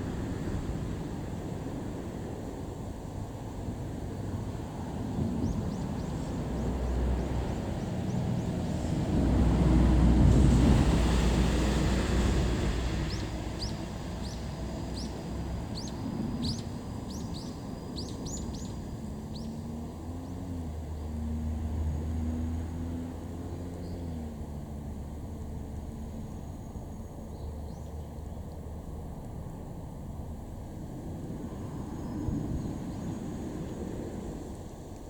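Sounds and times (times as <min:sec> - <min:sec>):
vehicle passing by: 0:04.2 - 0:35.0
small bird chirping: 0:13.1 - 0:20.4.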